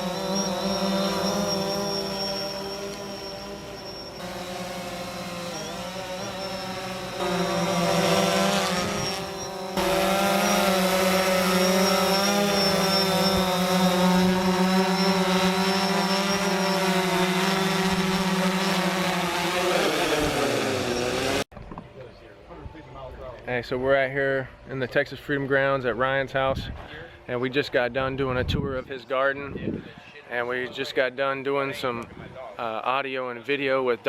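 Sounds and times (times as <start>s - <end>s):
drone propeller buzzing: 0.0s - 21.5s.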